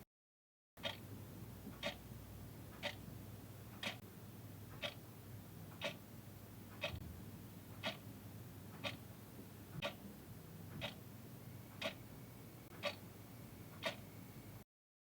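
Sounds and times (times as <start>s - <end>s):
clock ticking: 0.8s - 1.1s, 1.7s - 2.1s, 2.7s - 3.0s, 3.7s - 4.0s, 4.7s - 5.0s, 5.7s - 6.0s, 6.7s - 7.0s, 7.7s - 8.1s, 8.7s - 9.1s, 9.8s - 10.0s, 10.7s - 11.0s, 11.8s - 12.1s, 12.7s - 13.0s, 13.8s - 14.0s
faint low hum: 0.9s - 14.6s.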